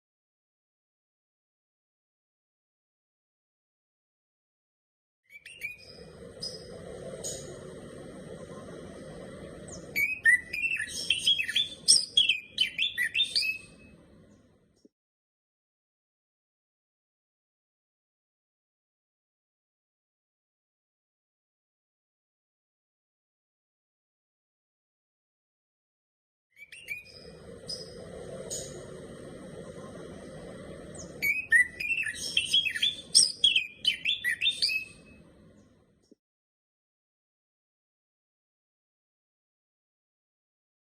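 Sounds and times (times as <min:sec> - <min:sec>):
bird chirping: 0:05.3 - 0:07.8, 0:08.6 - 0:14.5, 0:26.6 - 0:36.2
low hiss: 0:05.8 - 0:14.5, 0:26.9 - 0:35.8.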